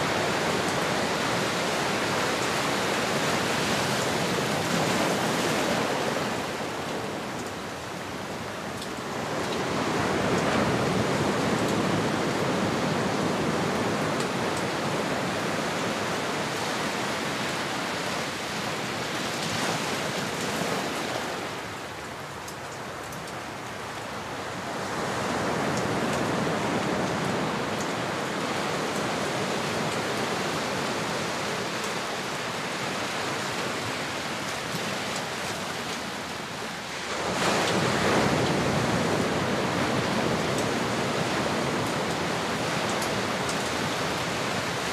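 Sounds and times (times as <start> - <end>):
ocean waves: 0.0 - 44.9.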